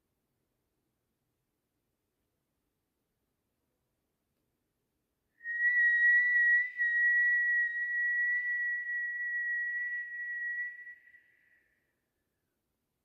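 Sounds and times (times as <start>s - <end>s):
high whistled tone: 5.4s - 12.2s.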